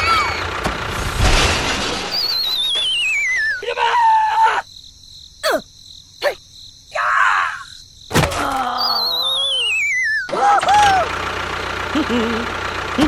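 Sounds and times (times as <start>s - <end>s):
high wobbling sliding whistle: 2.1s - 3.6s, 9.4s - 10.3s
cartoon falling zips: 9.1s - 10.4s.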